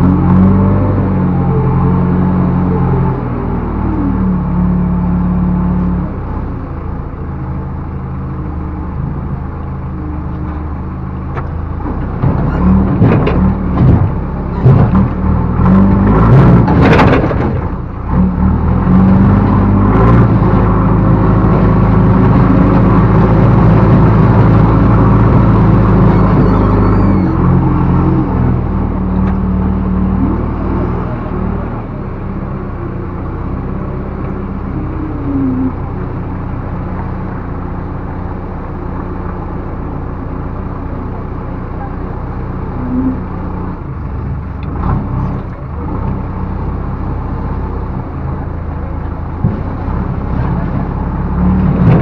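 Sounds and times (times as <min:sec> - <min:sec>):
diesel engine under load: 0:00.0 - 0:52.0
knocks and clatter: 0:11.2 - 0:17.9, 0:49.3 - 0:52.0.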